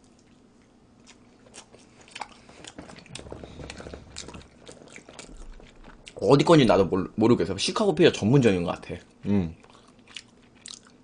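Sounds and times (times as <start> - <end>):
person biting and chewing pizza: 0.0 - 6.6, 9.6 - 11.0.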